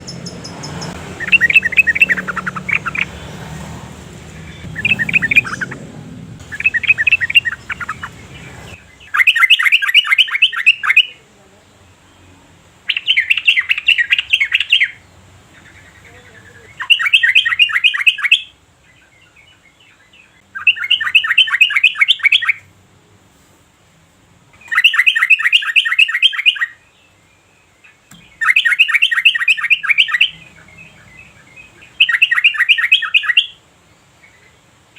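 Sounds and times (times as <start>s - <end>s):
bird singing bubbly phrases: 0.0s - 11.2s, 15.6s - 18.5s, 19.9s - 22.6s, 24.6s - 26.8s, 27.9s - 33.6s.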